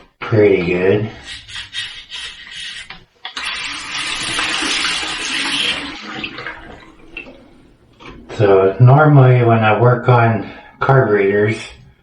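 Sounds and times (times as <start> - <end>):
water running from sink tap: 3.2 - 9.8.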